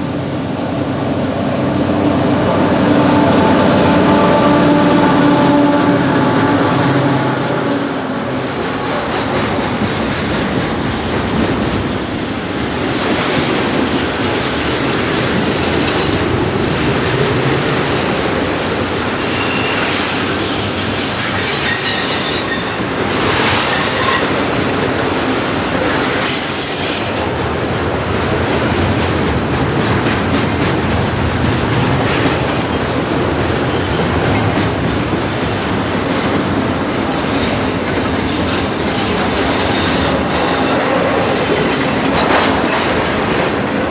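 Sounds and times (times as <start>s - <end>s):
train wheels rumbling on rails: 0.0s - 43.9s
high wheel squeals: 1.8s - 8.3s, 18.5s - 24.5s, 26.2s - 27.4s, 36.3s - 41.4s.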